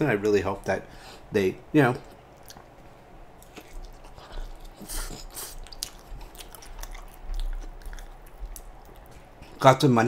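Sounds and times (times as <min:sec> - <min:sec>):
person chewing crunchy pizza: 0:01.9 - 0:09.7.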